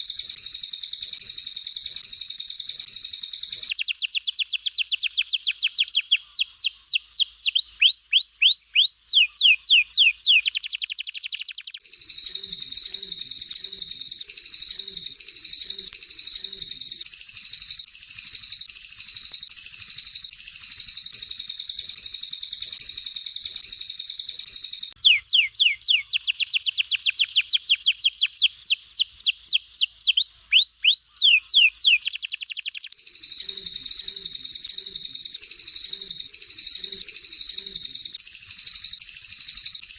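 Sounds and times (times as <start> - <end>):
bird fast falling whistles: 25.0 - 33.4.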